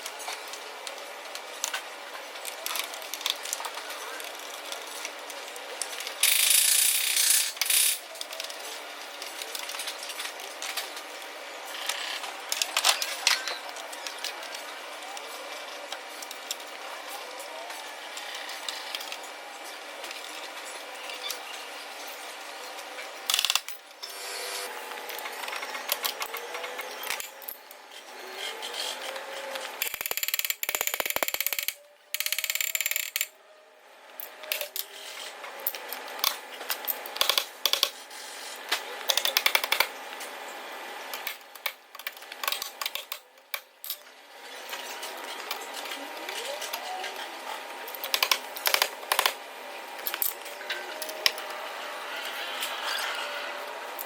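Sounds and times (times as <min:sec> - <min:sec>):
ratchet clicking: 0:06.2 - 0:08.0, 0:23.3 - 0:23.8, 0:29.8 - 0:33.3.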